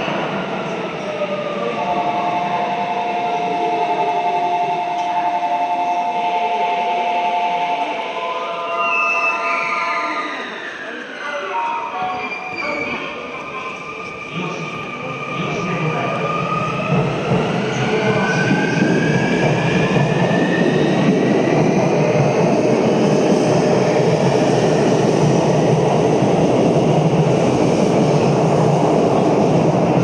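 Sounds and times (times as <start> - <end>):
train cars running on rails: 0.0 - 8.9, 9.9 - 30.0.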